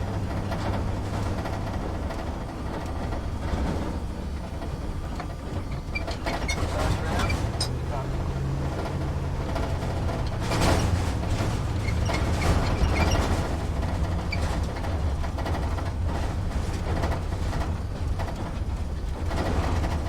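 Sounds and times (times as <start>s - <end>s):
truck engine rumble inside cab: 0.0s - 20.0s
cab rattles and squeaks: 4.5s - 20.0s.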